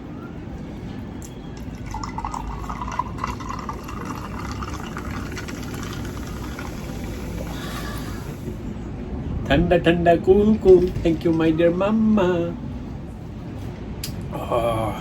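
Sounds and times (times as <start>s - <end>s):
cola fizzing into a glass: 1.2s - 8.6s.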